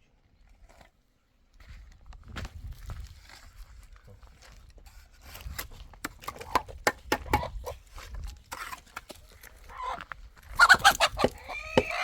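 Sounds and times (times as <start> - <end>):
hen clucking loudly: 10.6 - 12.0.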